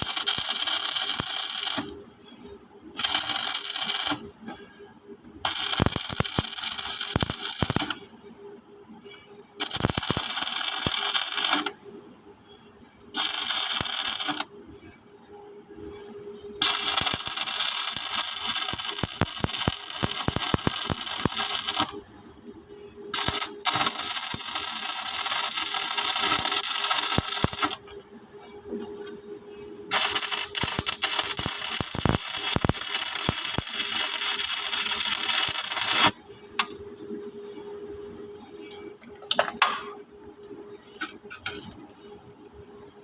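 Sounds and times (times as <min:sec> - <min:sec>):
welding arc hissing and crackling: 0:00.0 - 0:02.0, 0:03.0 - 0:04.4, 0:05.4 - 0:08.1, 0:09.6 - 0:11.8, 0:13.1 - 0:14.5, 0:16.6 - 0:22.1, 0:23.1 - 0:28.0, 0:29.9 - 0:36.8
faint steady hum: 0:00.0 - 0:43.0.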